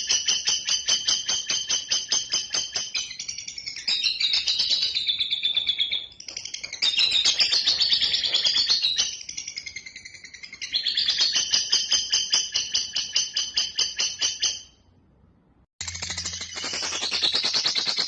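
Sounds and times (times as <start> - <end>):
bird chattering trill: 15.8 - 18.0.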